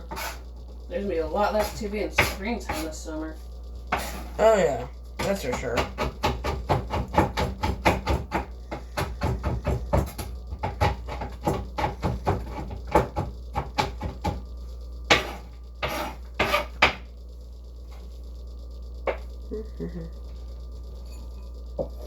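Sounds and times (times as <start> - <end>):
sharp knocks on kitchen surface: 1.6 - 2.8, 5.2 - 14.4, 15.1 - 17.0.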